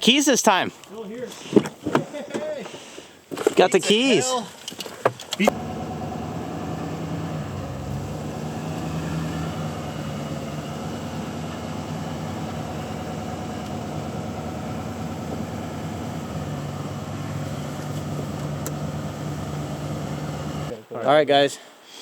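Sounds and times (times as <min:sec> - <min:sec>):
truck engine running: 0:05.5 - 0:20.7.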